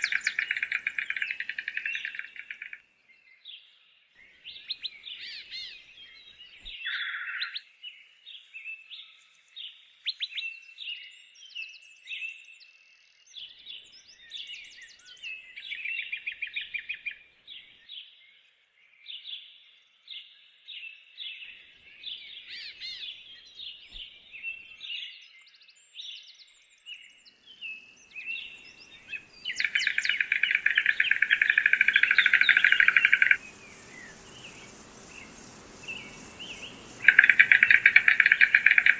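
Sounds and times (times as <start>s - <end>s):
high insect hiss: 0.0s - 2.8s, 27.6s - 38.9s
small birds chirping: 0.0s - 2.8s, 27.5s - 38.9s
fast rattling trill: 37.0s - 38.9s.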